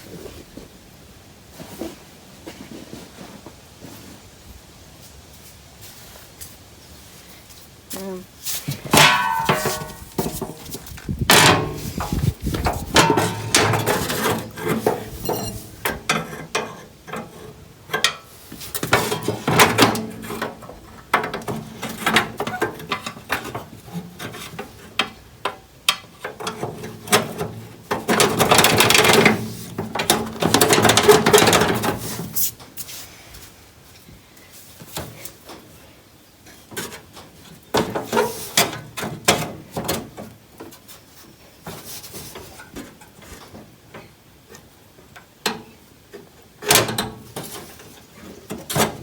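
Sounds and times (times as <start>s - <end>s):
hand tools knocking and clanking: 8.9s - 32.0s.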